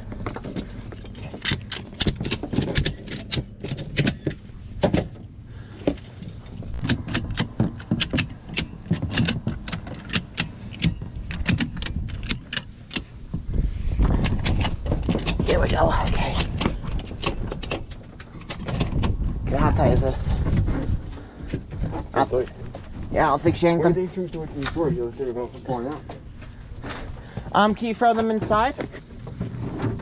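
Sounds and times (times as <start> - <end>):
ratchet strap clicking: 1.3 - 4.4, 6.7 - 13.1.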